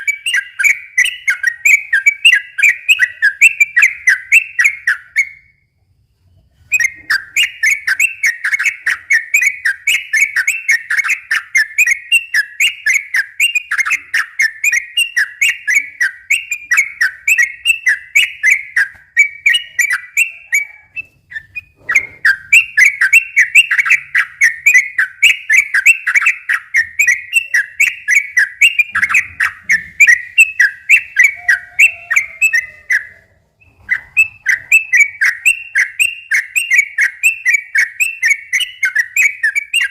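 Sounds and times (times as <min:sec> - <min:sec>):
bird singing repeated notes: 0:00.0 - 0:39.9.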